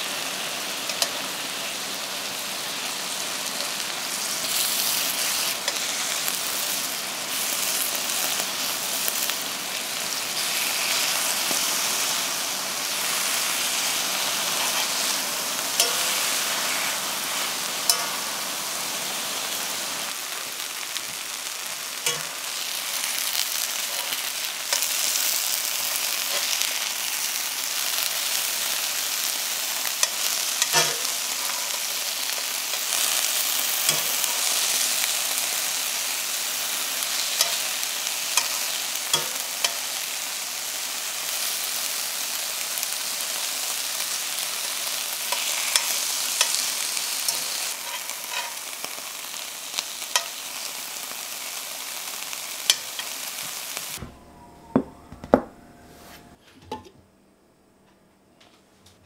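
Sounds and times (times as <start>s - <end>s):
vegetables sizzling in glaze: 0.0s - 54.0s
utensils clicking against pan: 22.0s - 22.3s, 38.4s - 39.8s.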